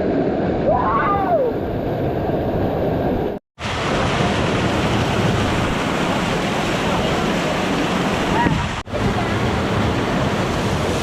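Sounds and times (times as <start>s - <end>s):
whitewater rapids roaring: 3.6s - 11.0s.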